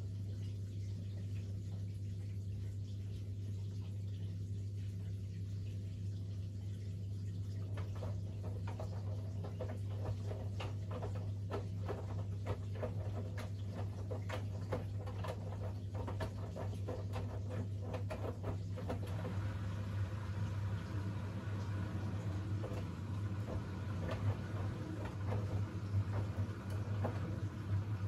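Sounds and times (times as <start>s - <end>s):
washing machine hum: 0.0s - 28.0s
laundry tumbling in drum: 7.6s - 28.0s.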